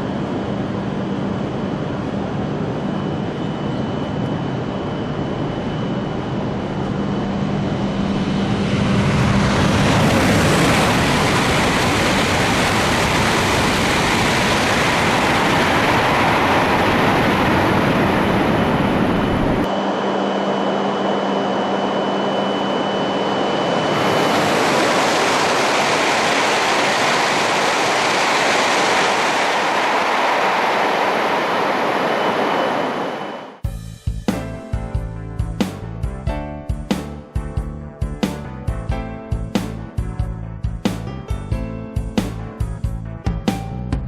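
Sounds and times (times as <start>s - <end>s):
high-speed train rushing past: 7.2s - 33.6s.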